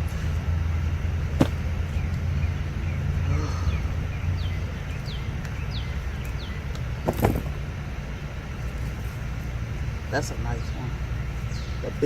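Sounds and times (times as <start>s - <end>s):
steady low rumble: 0.0s - 12.0s
rustle or knock: 7.0s - 7.6s.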